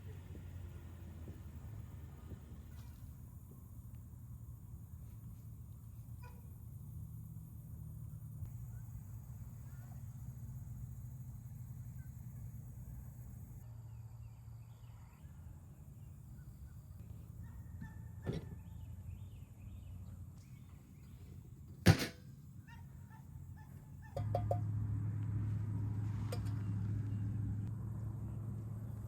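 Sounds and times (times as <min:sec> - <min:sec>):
low engine drone: 0:23.4 - 0:29.0.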